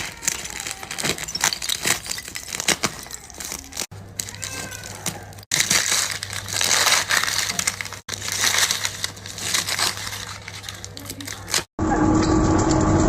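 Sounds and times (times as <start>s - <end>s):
crunching of something crushed: 0.0s - 11.7s.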